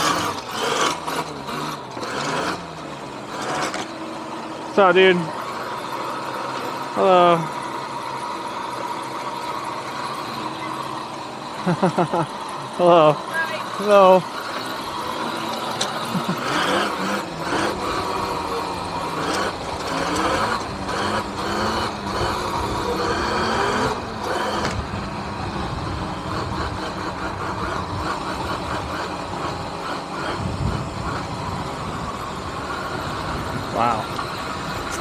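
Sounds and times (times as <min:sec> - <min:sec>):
electric motor whine: 0:00.0 - 0:35.0
wind rushing over microphone: 0:30.3 - 0:34.8.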